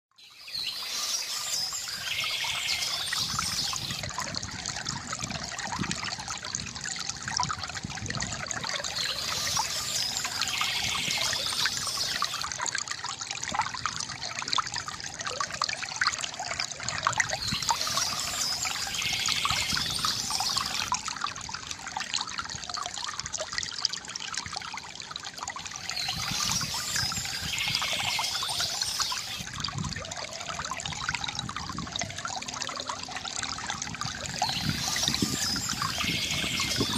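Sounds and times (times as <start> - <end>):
stream trickling and babbling: 0.1 - 36.9
bird singing: 0.2 - 4.0, 8.9 - 12.4, 17.4 - 20.9, 25.9 - 29.4, 34.4 - 36.9.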